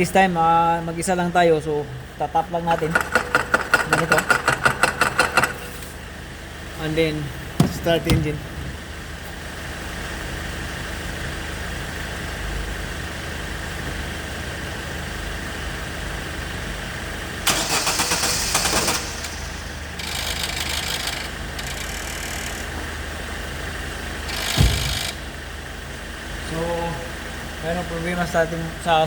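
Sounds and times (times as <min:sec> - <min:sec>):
car engine idling: 0:05.0 - 0:13.3, 0:15.1 - 0:28.9
sharp thump: 0:07.6 - 0:09.0, 0:24.4 - 0:25.5
hiss: 0:17.5 - 0:20.3.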